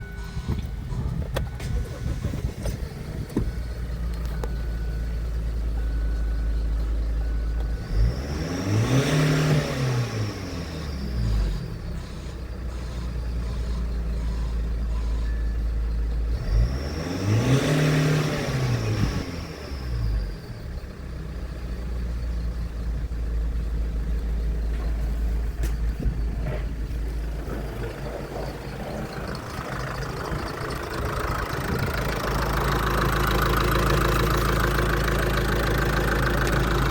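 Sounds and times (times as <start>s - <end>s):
diesel engine idling and revving: 0.0s - 36.9s.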